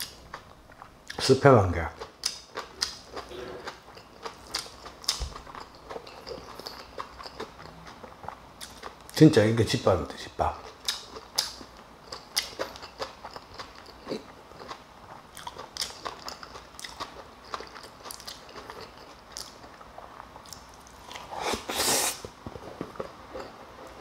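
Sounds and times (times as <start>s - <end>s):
person chewing and crunching: 0.0s - 9.2s, 10.5s - 24.0s.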